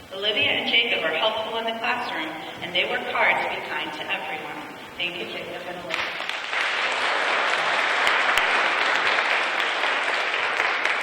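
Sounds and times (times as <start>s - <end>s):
audience clapping: 5.9s - 11.0s.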